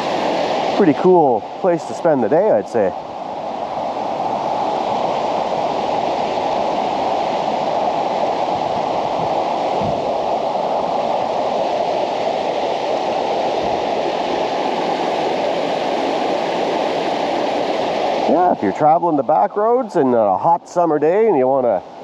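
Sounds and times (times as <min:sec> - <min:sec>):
water pouring through a dam: 0:00.0 - 0:03.0.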